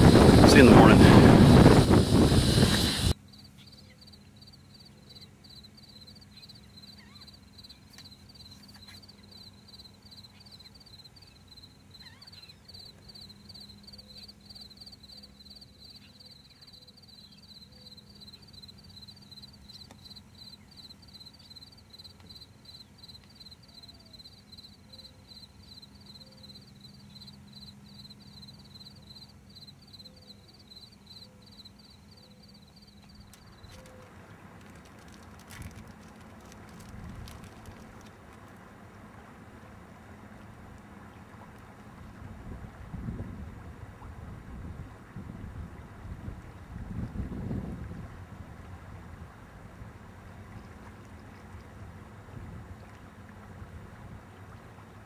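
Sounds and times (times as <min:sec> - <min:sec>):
wind on microphone: 0:00.0 - 0:03.2, 0:42.0 - 0:51.7, 0:52.3 - 0:52.9
cricket chirping: 0:03.1 - 0:38.2
faint low hum: 0:03.2 - 0:55.0.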